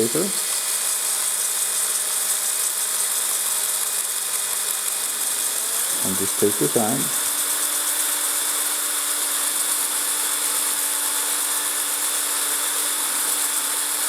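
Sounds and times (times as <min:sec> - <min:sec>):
electric drill motor hum: 0:00.0 - 0:14.0.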